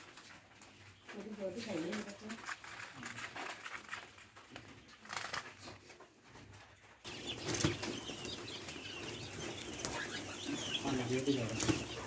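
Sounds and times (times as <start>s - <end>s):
quail pecking and scratching: 0.0s - 12.0s
wings rustling: 7.0s - 12.0s
high chirps: 7.1s - 12.0s.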